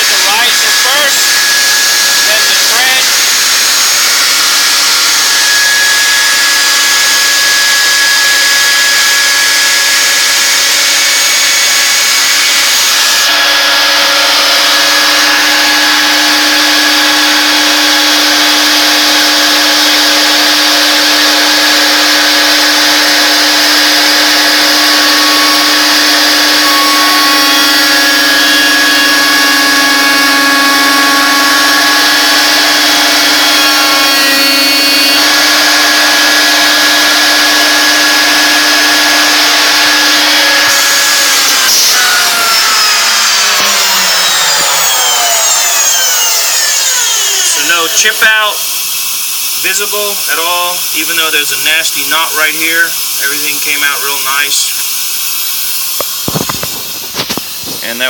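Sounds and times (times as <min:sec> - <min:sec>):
cnc router cutting wood: 0:00.0 - 0:58.0.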